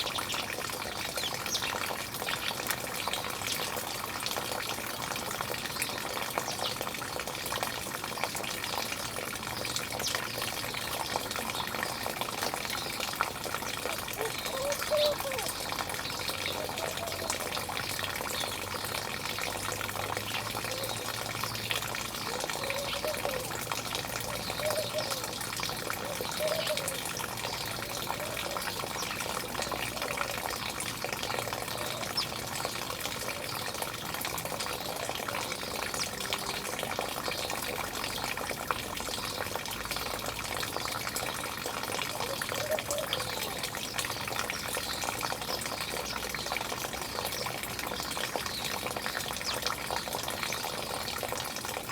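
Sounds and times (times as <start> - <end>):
running water rushing: 0.0 - 51.9
birds chirping: 14.1 - 17.5, 24.3 - 25.4.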